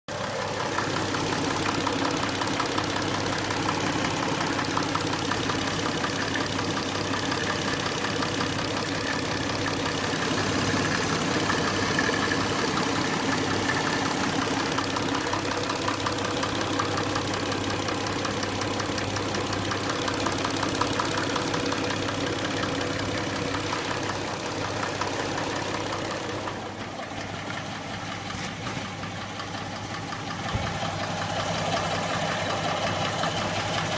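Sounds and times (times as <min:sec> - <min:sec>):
car engine idling: 0:00.1 - 0:33.9
rapid ticking knock: 0:00.9 - 0:26.5.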